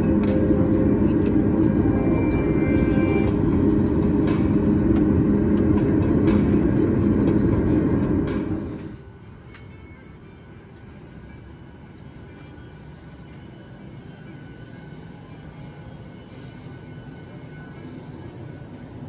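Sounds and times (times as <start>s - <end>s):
aircraft cabin engine rumble: 0.0s - 9.0s.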